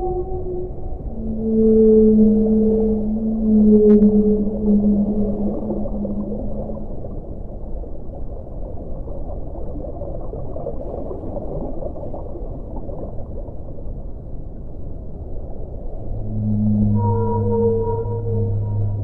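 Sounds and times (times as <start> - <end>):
deep held tone: 0.0 - 7.6, 15.7 - 19.0
underwater water rush: 3.8 - 14.6.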